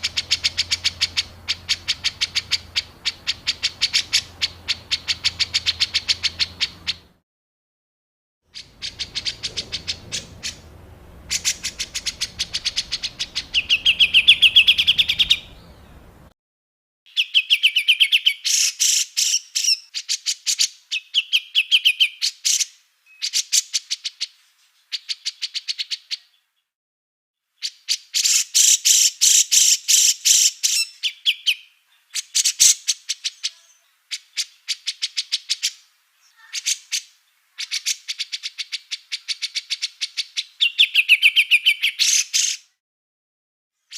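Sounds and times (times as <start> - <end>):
songbird chattering bursts: 0.0 - 7.1, 8.6 - 16.0.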